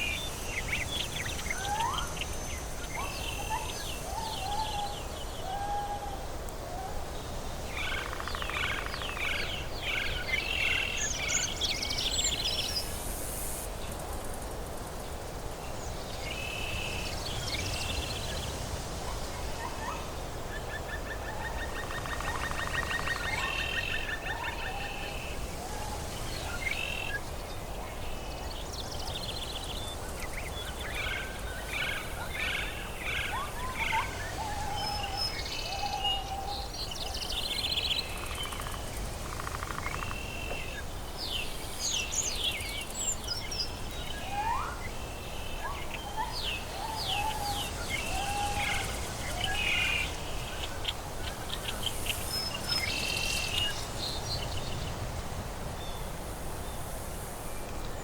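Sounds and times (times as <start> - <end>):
steady background hiss: 0.0 - 58.0
birds calling and chirping: 15.9 - 56.9.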